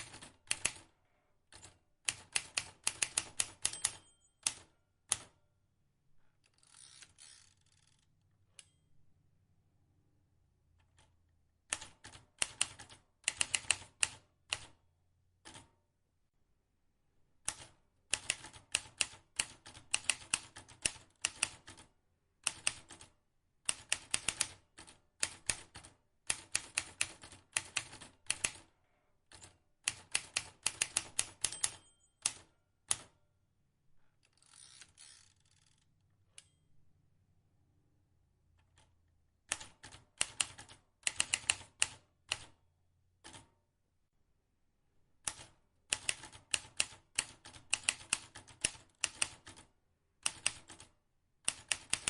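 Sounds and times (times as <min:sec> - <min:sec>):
typewriter keys clicking: 0:01.6 - 0:05.3, 0:17.5 - 0:21.8, 0:23.7 - 0:28.6, 0:29.3 - 0:33.1, 0:39.5 - 0:42.5, 0:45.2 - 0:49.6, 0:50.2 - 0:50.9, 0:51.5 - 0:52.0.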